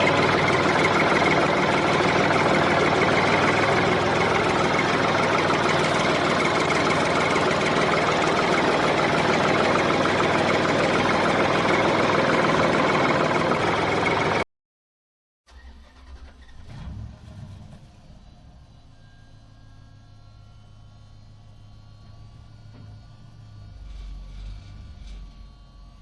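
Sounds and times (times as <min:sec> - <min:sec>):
vehicle engine idling: 0:00.0 - 0:14.4.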